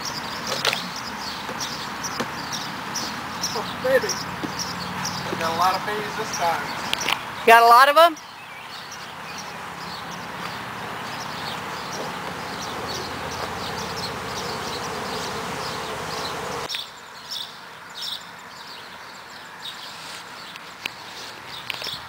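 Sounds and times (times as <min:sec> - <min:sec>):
birds chirping: 0:00.0 - 0:22.0
bees buzzing: 0:09.2 - 0:16.7.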